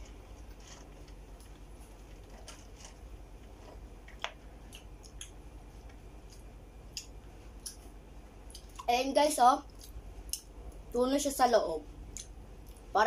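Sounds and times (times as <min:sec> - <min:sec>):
people chewing: 0:00.0 - 0:07.9.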